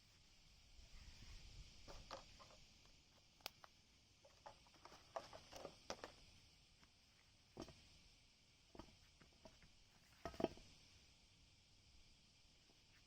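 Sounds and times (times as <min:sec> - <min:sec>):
faint light clicks and scrapes: 0:00.9 - 0:06.3.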